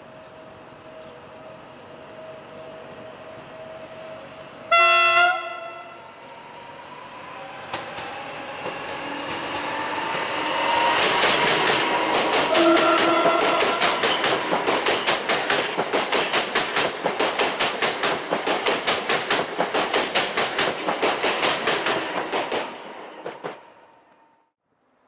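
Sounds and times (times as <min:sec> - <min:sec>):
train wheels clicking over rail joints: 0:07.6 - 0:23.8.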